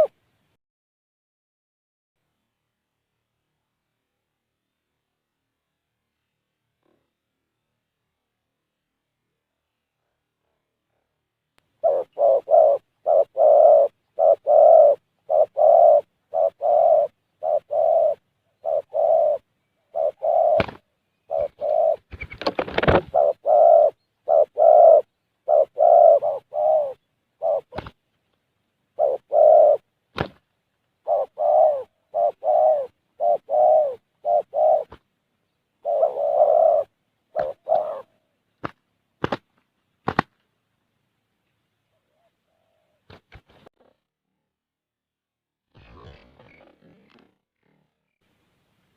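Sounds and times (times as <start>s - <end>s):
dove cooing: 11.8s - 28.0s, 28.9s - 29.9s, 31.0s - 35.0s, 35.8s - 38.4s.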